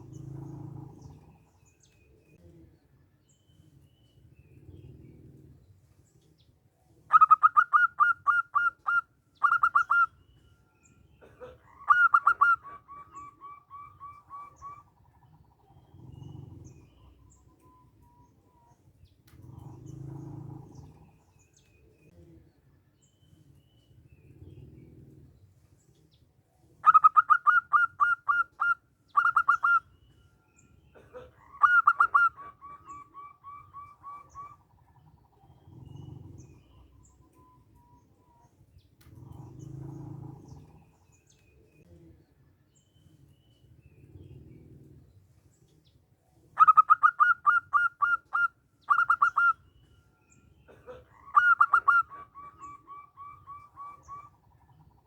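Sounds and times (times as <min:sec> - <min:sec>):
dove cooing and trilling: 0:00.0 - 0:01.8, 0:07.1 - 0:10.4, 0:11.2 - 0:22.0, 0:26.8 - 0:41.9, 0:46.5 - 0:55.0.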